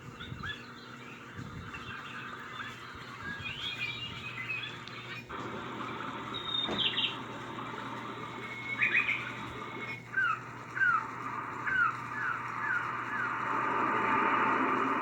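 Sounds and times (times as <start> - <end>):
recorded birdsong from speaker: 0.0 - 14.2
steady hiss: 4.9 - 15.0.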